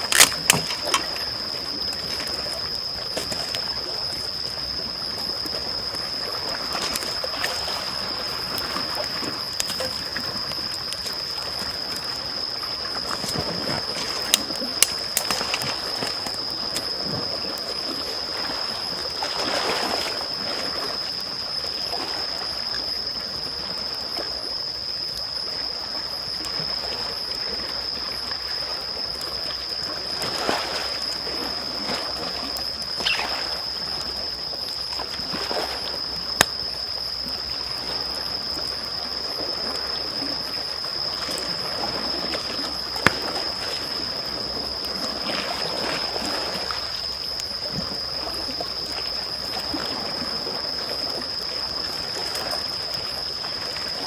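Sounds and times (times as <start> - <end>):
burning wood popping: 0.0 - 1.2, 14.2 - 15.7
wood fire crackling: 0.0 - 1.2
small waves lapping: 0.0 - 22.8, 26.4 - 54.0.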